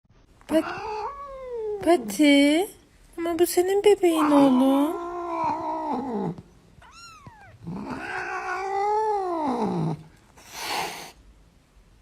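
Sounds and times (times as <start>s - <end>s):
cat yowling: 0.5s - 1.8s, 4.2s - 10.0s
cat hissing: 4.2s - 11.2s.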